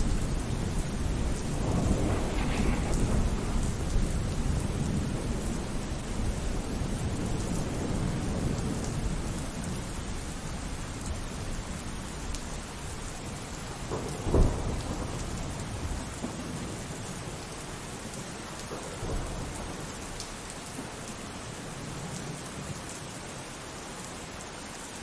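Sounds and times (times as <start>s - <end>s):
loud thunderclap: 0.0s - 9.4s, 13.8s - 16.8s
rumble of thunder: 0.0s - 12.4s, 13.1s - 20.2s
steady rain falling: 0.0s - 25.0s.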